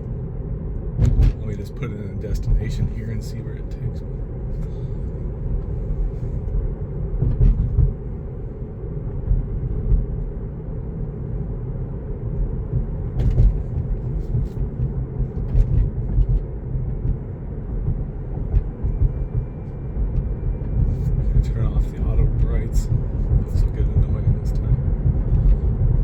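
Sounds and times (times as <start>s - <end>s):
road and tyre rumble in car cabin: 0.0s - 26.0s.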